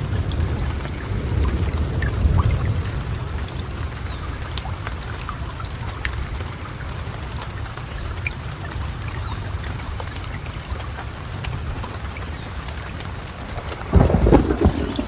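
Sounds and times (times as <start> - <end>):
low rumble of thunder: 0.0 - 4.8, 12.8 - 15.0
raindrops ticking: 0.0 - 15.0
steady rain: 0.0 - 15.0.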